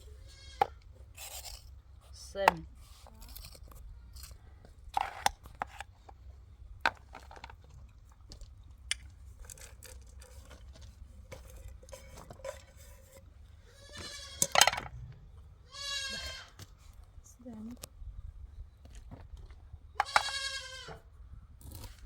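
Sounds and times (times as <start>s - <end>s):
goat bleating: 0.2s - 0.8s, 13.7s - 14.6s, 15.6s - 16.6s, 20.0s - 21.0s.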